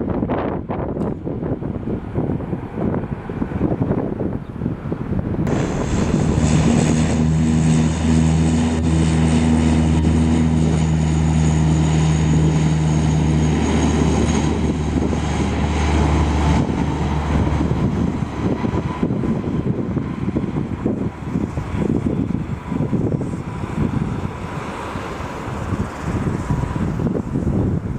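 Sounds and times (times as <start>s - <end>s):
airliner engines droning: 0.0s - 27.9s
wind noise on microphone: 0.0s - 27.9s
steady humming tones: 5.3s - 27.2s.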